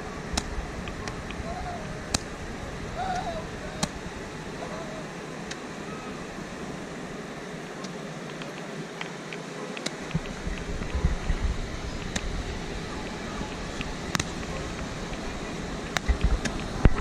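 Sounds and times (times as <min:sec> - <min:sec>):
faint crackles: 0:00.0 - 0:17.0
outdoor background noise: 0:00.0 - 0:17.0
fireworks popping and cracking: 0:09.8 - 0:17.0.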